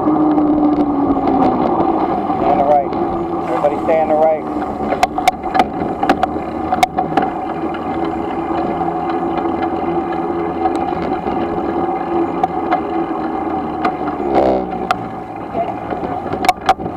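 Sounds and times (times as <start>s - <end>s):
road and wind noise: 0.0s - 16.9s.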